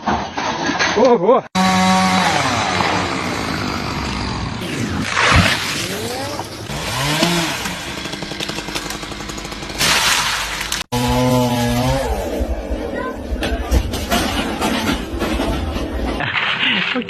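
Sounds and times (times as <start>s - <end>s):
chainsaw revving: 1.6s - 4.8s, 5.8s - 12.4s.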